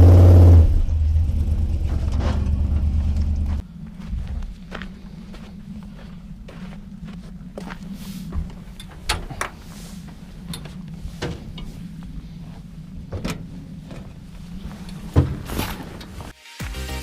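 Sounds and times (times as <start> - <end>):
low mechanical hum: 0.0 - 16.3
metal knocks and clanks: 8.3 - 9.6, 13.0 - 14.2.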